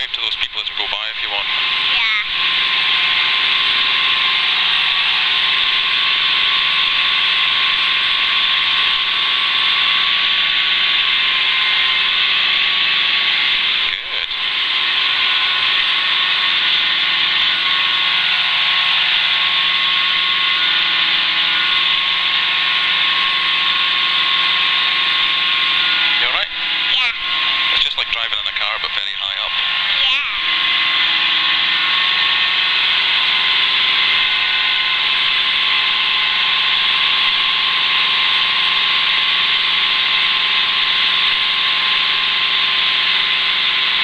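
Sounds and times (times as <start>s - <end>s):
helicopter cabin hiss: 0.0s - 5.6s, 11.0s - 22.0s, 23.0s - 32.6s
helicopter engine and rotor drone: 0.0s - 44.0s.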